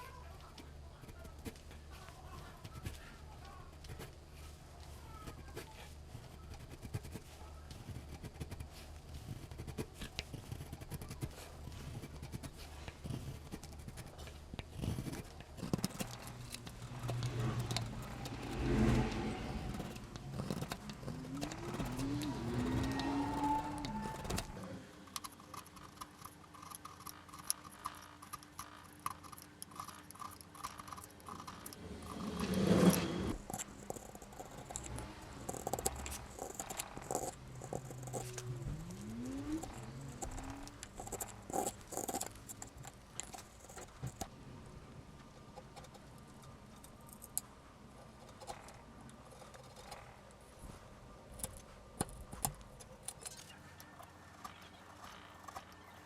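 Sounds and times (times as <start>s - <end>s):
chisel scraping wood: 5.3s - 24.8s, 31.3s - 44.2s.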